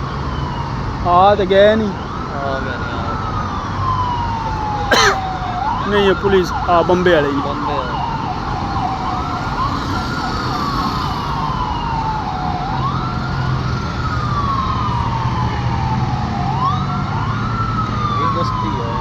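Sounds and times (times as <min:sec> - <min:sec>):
siren wailing: 0:03.0 - 0:19.0
low engine rumble: 0:07.0 - 0:13.9.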